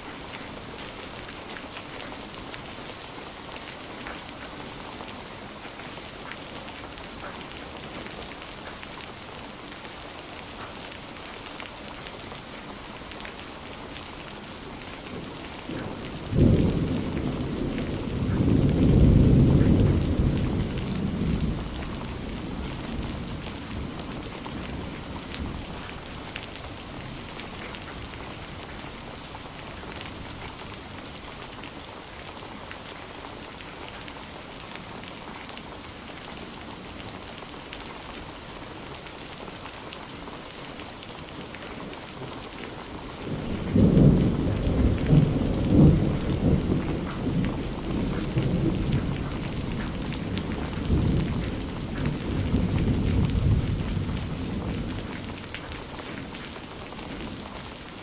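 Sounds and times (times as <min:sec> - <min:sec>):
steady rain falling: 0:00.0 - 0:58.0
thunder rumbling: 0:15.0 - 0:28.9, 0:43.2 - 0:56.3.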